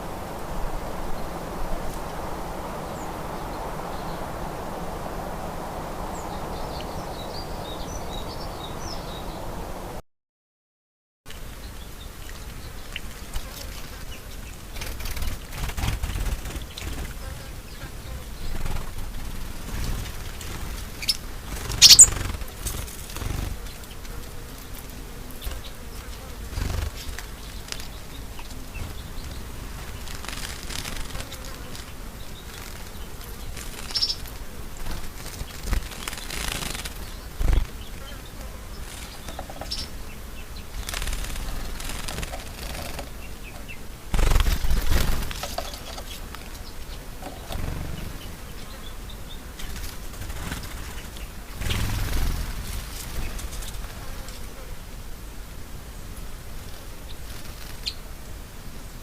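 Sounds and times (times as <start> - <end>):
steady low rumble: 0.0 - 10.0
wild birds chirping: 0.0 - 10.0, 11.4 - 55.0, 56.4 - 58.1.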